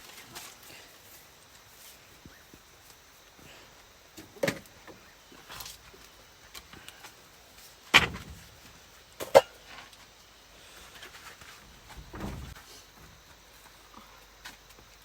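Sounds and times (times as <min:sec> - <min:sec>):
dull thud: 0:07.9 - 0:08.6, 0:11.8 - 0:13.2.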